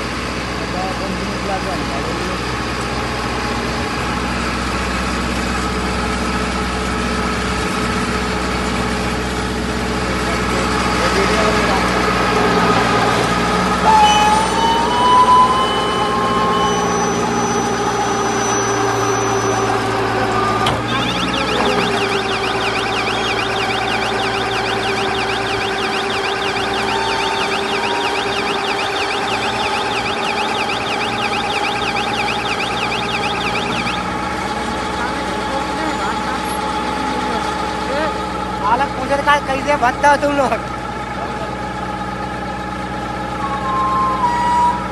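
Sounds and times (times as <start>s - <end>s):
baler machine humming: 11.2s - 37.5s
thin rising whine: 13.8s - 35.1s
high electronic warble: 13.9s - 35.2s.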